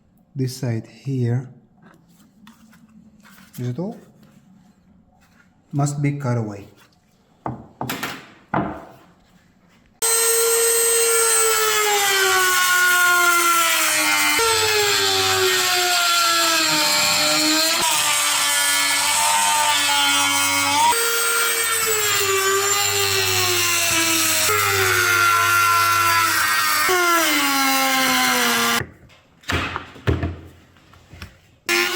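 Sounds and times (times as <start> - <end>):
power tool motor whine: 10.0 - 15.8.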